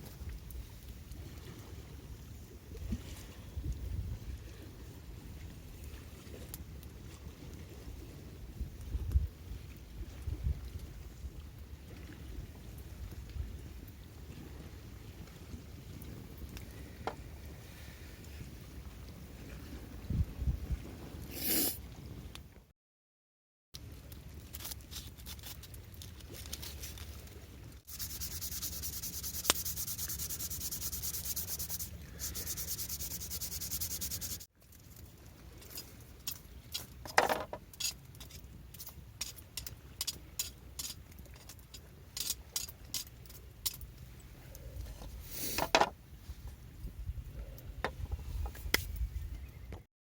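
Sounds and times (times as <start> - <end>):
sanding wood: 27.9 - 34.5.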